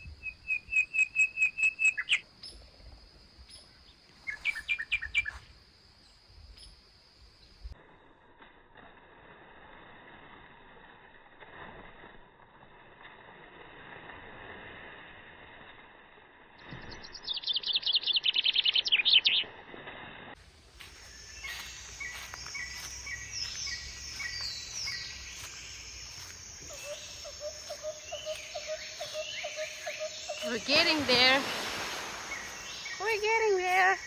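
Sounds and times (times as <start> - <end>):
birds singing whistled notes: 0.0 - 2.6, 3.5 - 5.4, 16.8 - 19.4, 20.9 - 34.0
bird chattering trill: 26.7 - 31.1.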